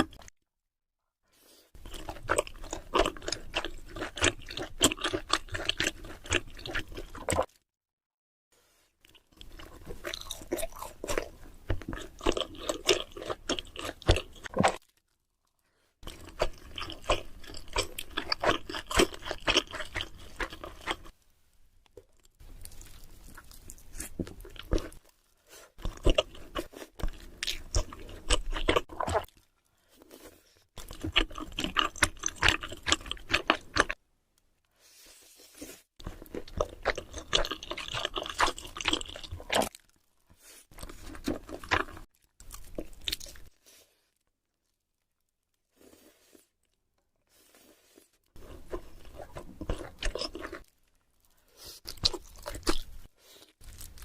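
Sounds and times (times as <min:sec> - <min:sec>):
chewing and crunching: 0:00.0 - 0:00.3, 0:01.8 - 0:07.6, 0:09.0 - 0:21.2, 0:21.8 - 0:34.0, 0:35.4 - 0:54.0.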